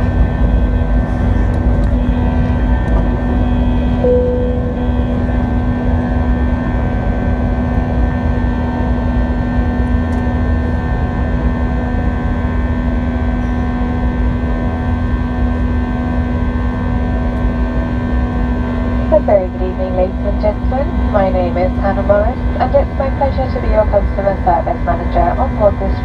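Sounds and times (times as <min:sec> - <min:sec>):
airplane cabin drone: 0:00.0 - 0:26.0.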